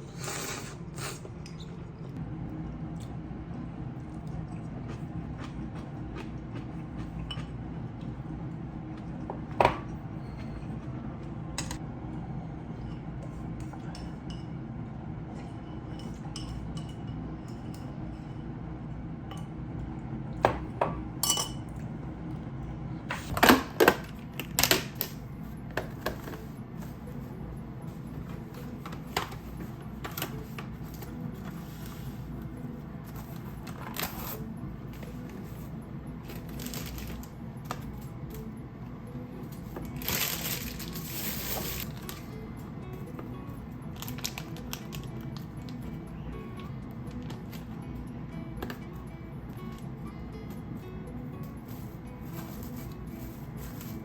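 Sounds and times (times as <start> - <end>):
low room hum: 0.0 - 54.0
tableware clinking: 20.8 - 21.7.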